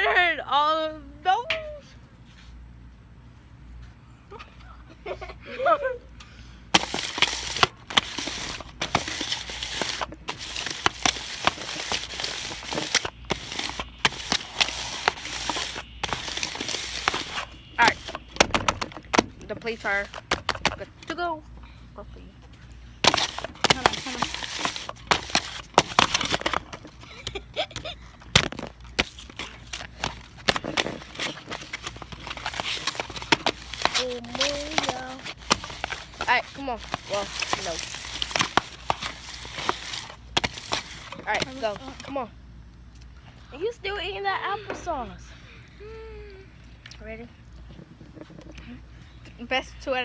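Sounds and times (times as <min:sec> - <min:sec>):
crinkling handling noise: 0:06.7 - 0:21.2, 0:22.4 - 0:42.2.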